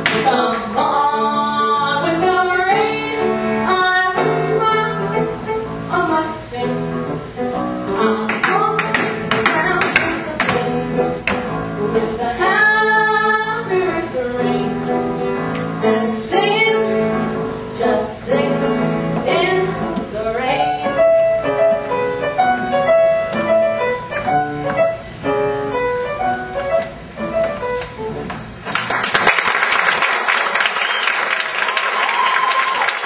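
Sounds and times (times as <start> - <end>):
young voices singing: 0.0 - 5.1, 11.9 - 15.0, 15.8 - 20.8
piano accompaniment: 0.0 - 29.4.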